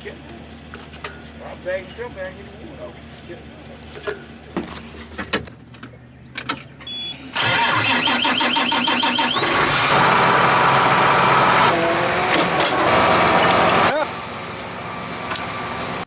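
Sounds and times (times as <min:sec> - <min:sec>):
truck engine cranking and starting: 0:06.3 - 0:16.0.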